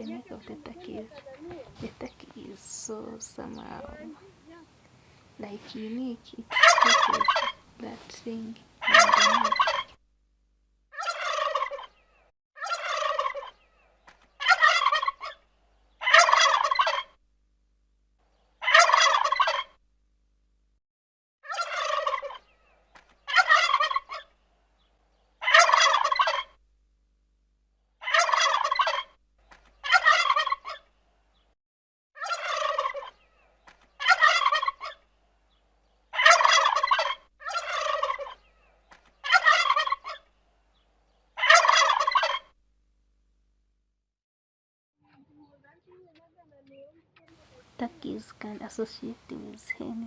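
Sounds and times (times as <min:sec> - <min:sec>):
turkey gobbling: 0:00.0 - 0:10.0, 0:11.0 - 0:12.0, 0:12.6 - 0:13.6, 0:14.4 - 0:15.4, 0:16.0 - 0:17.1, 0:18.6 - 0:19.7, 0:21.5 - 0:22.5, 0:23.3 - 0:24.3, 0:25.4 - 0:26.5, 0:28.0 - 0:29.1, 0:29.8 - 0:30.9, 0:32.2 - 0:33.2, 0:34.0 - 0:35.0, 0:36.1 - 0:38.5, 0:39.2 - 0:40.3, 0:41.4 - 0:42.5.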